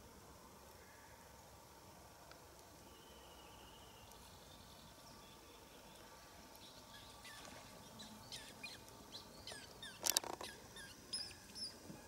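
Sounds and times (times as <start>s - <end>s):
small birds chirping: 2.6s - 12.0s.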